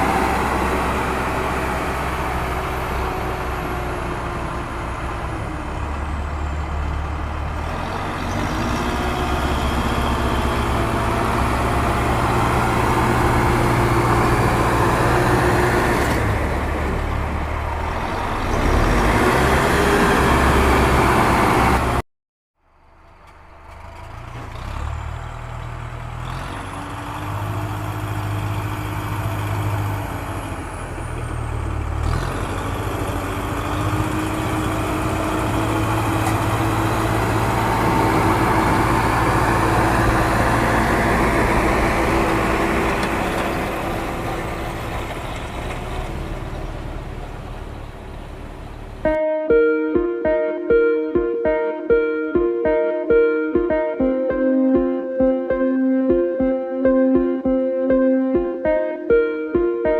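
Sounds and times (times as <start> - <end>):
vehicle engine running: 22.6 - 49.2.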